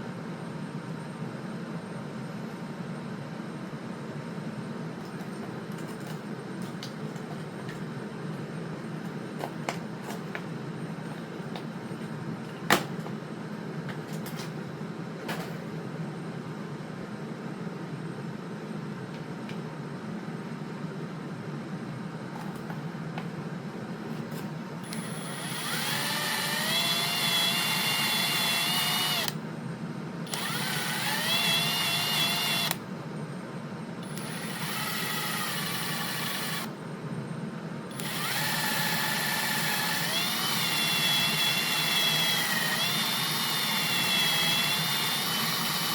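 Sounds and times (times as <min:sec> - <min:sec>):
steady low hum: 0:00.0 - 0:45.9
power drill whining: 0:24.8 - 0:29.4, 0:30.3 - 0:32.8, 0:34.0 - 0:36.7, 0:37.9 - 0:45.9.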